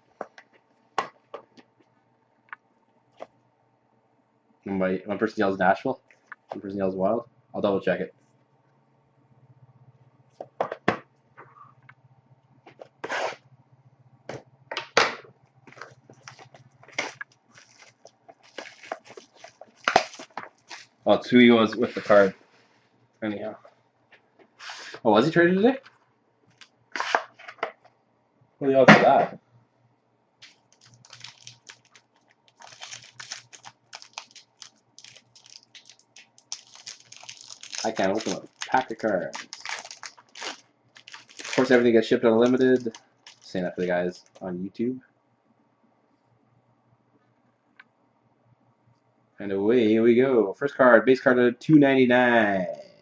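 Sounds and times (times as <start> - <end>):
faint low hum: 0.0 - 53.0
packaging crinkling and rustling: 15.7 - 21.0, 30.4 - 44.4.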